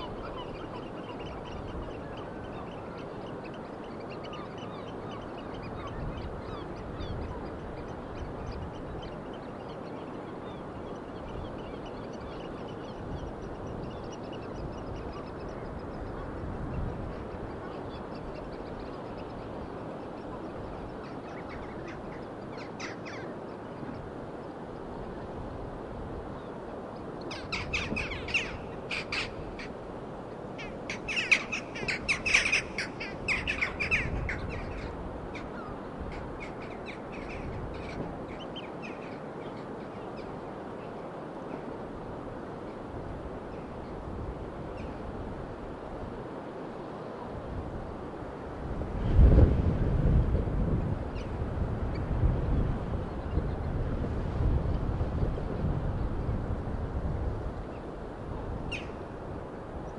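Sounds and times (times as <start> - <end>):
birds calling rapidly: 0.0 - 24.1, 27.2 - 29.8, 30.5 - 40.7.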